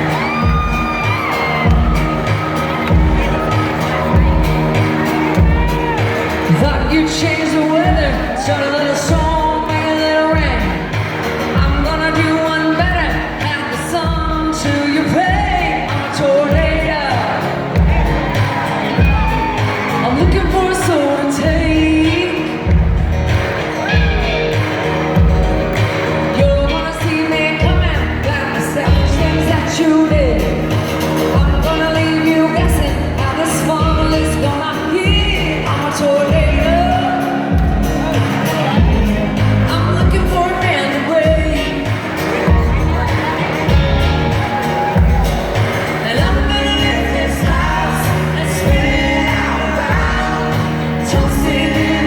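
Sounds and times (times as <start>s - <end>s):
low drum beat: 0.0s - 8.5s, 17.8s - 22.0s, 37.5s - 40.6s, 41.2s - 52.0s
person singing: 0.0s - 24.6s, 25.8s - 52.0s
band accompaniment: 0.0s - 52.0s.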